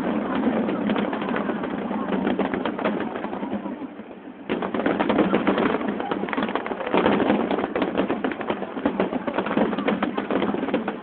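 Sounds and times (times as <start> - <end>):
firework crackle: 0.0 - 11.0
firework shells bursting: 4.4 - 11.0.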